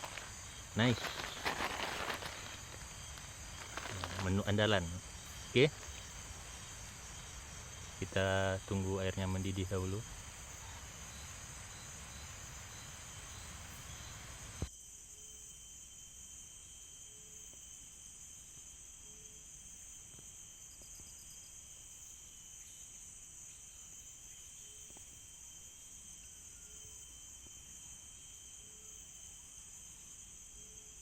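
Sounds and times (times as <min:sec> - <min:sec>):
steady hiss: 0:00.0 - 0:14.7
insect chorus trilling: 0:00.0 - 0:31.0.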